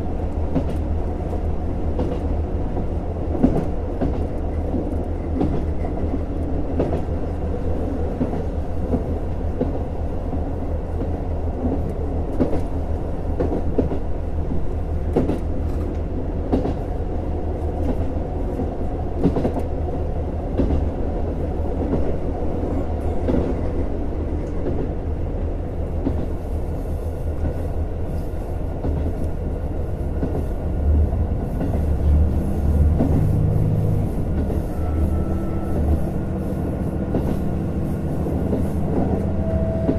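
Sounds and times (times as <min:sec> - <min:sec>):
railcar engine and wheels rumble: 0:00.0 - 0:39.9.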